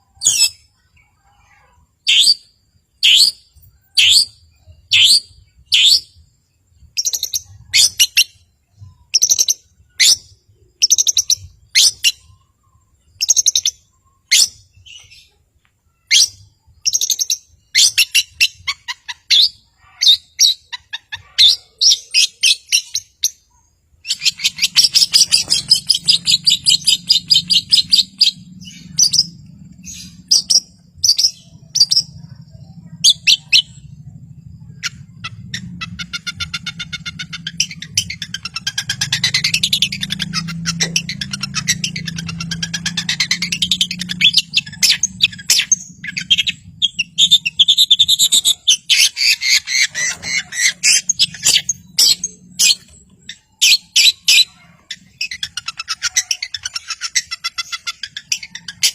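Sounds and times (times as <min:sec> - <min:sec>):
shrike singing sharp calls: 0:16.0 - 0:58.9
low hum: 0:24.3 - 0:53.5.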